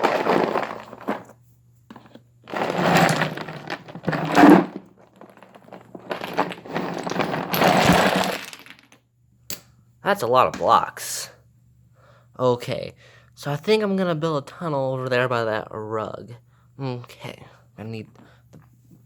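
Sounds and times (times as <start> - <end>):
toy blocks clattering onto floor: 0.0 - 1.3, 1.9 - 9.0.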